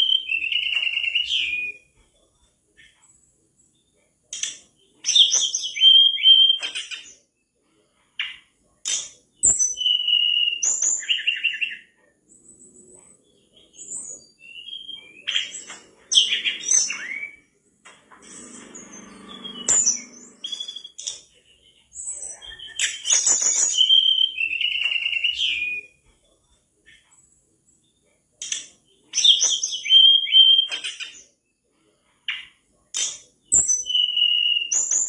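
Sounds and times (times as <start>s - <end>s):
bird singing whistles and trills: 0.0s - 2.1s, 4.4s - 7.2s, 9.0s - 17.6s, 18.2s - 26.1s, 27.9s - 31.2s, 33.1s - 35.0s
faint low hum: 11.9s - 23.0s.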